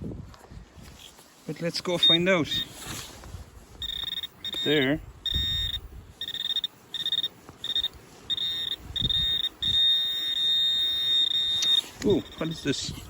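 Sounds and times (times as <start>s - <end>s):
metal detector beeping: 1.9s - 3.0s, 3.8s - 13.0s.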